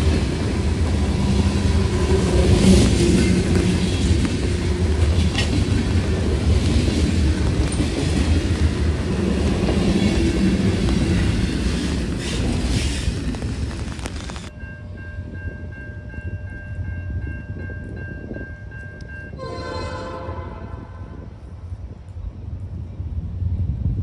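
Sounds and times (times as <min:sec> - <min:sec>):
wheels clicking over rail joints: 0:00.0 - 0:14.5
freight train rumbling past: 0:00.0 - 0:24.0.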